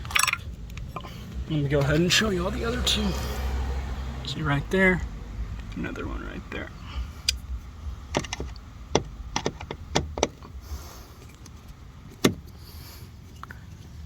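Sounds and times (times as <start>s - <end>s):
clicks and knocks on car door panel: 8.1s - 10.5s, 12.1s - 12.5s.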